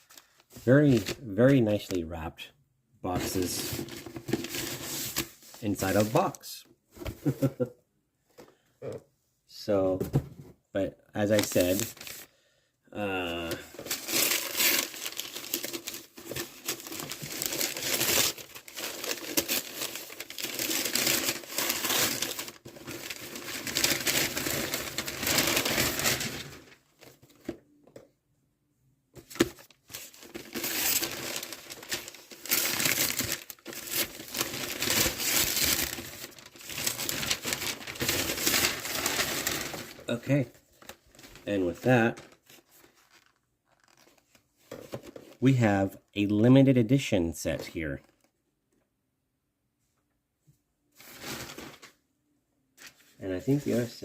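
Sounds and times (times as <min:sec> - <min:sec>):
packing wrap crinkling: 0:13.4 - 0:27.2, 0:29.4 - 0:44.4.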